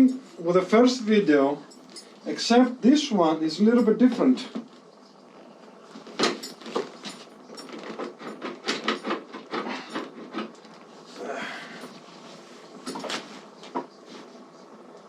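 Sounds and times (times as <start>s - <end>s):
clicks and knocks of hardware: 6.0s - 10.7s.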